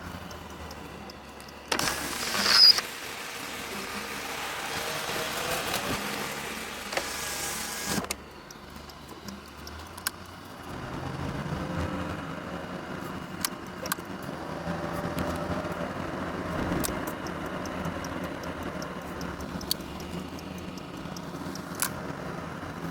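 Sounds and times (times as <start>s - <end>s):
car engine rumble: 0.0s - 22.9s
hiss: 1.8s - 8.1s.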